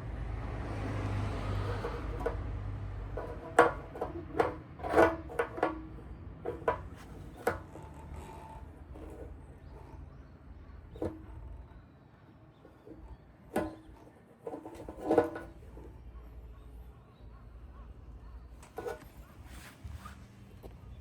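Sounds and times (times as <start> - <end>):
low engine hum: 0.0 - 4.0
sharp clicks and knocks: 1.5 - 11.8.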